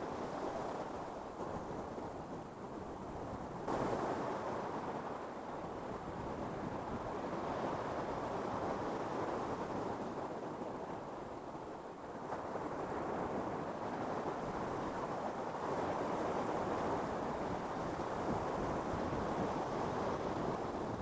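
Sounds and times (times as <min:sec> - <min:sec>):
ocean waves washing on sand: 0:00.0 - 0:10.5.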